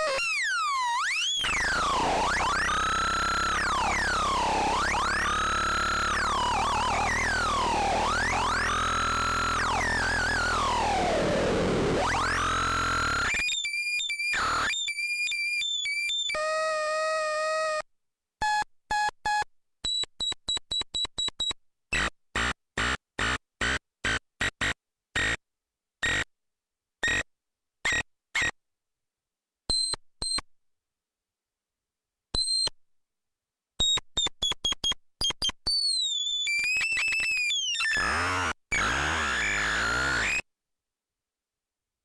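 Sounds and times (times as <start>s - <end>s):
electronic bleeps and buzzy tones: 0.0s - 13.4s.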